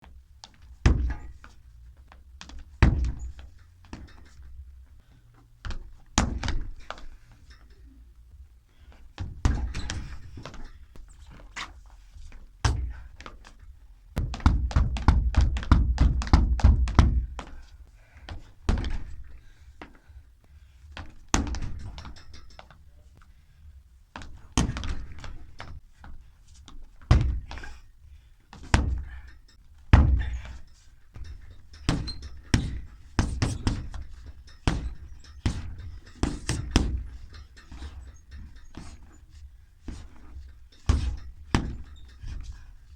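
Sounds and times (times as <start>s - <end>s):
martial arts strikes thudding: 29.9s - 30.5s.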